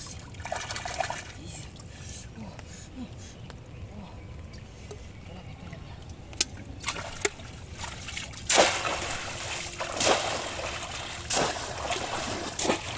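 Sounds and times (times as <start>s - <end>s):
splashes in muddy water: 6.8s - 12.9s.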